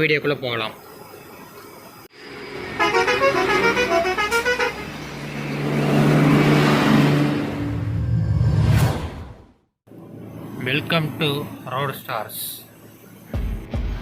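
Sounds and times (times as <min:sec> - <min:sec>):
bus musical horn: 0:02.6 - 0:05.4.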